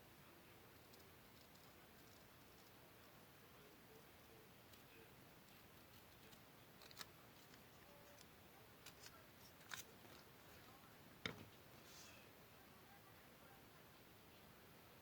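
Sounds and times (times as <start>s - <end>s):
paper being cut and handled: 5.5s - 10.3s.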